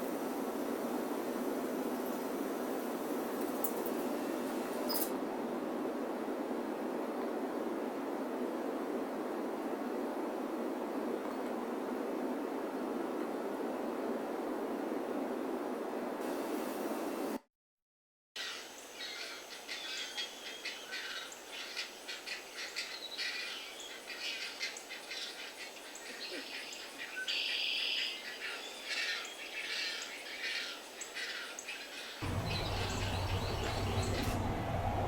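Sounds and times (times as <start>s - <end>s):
small birds chirping: 18.4s - 35.0s
noisy background with low hum: 32.2s - 35.0s.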